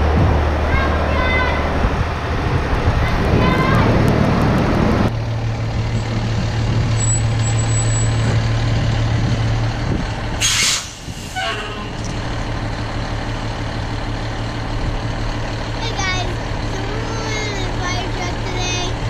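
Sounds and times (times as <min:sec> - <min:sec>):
fire truck engine idling: 0:00.0 - 0:19.0
air brakes hissing: 0:10.4 - 0:11.9.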